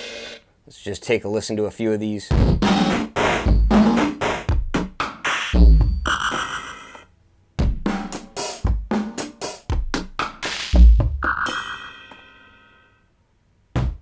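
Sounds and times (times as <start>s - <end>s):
drum beat with kicks and hi-hats: 0.0s - 0.4s, 2.3s - 7.0s, 7.6s - 12.3s, 13.8s - 14.0s.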